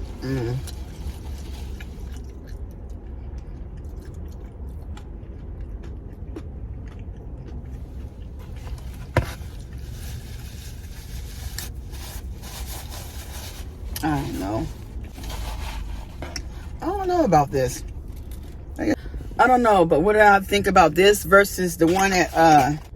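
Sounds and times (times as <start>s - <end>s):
person chewing and biting: 0.0s - 14.0s
steady low rumble: 0.0s - 22.9s.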